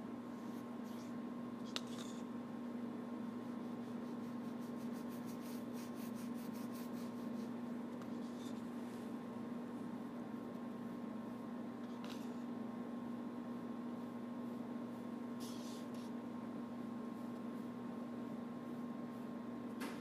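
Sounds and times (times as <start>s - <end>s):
steady low hum: 0.0s - 20.0s
paintbrush scrubbing: 3.4s - 8.6s.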